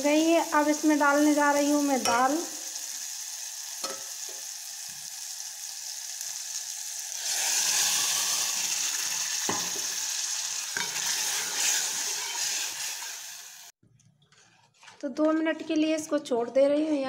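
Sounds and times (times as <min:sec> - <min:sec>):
food sizzling in hot oil: 0:00.0 - 0:13.8.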